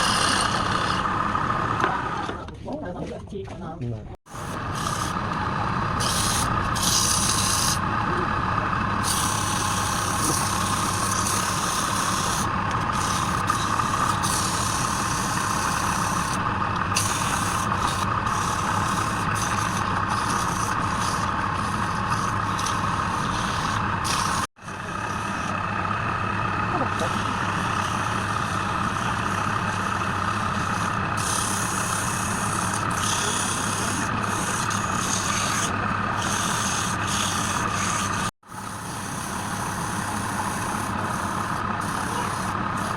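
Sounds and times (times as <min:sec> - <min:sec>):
lathe motor hum: 0:00.0 - 0:02.4, 0:04.3 - 0:42.9
tool scraping spinning wood: 0:00.0 - 0:02.5, 0:04.3 - 0:42.9.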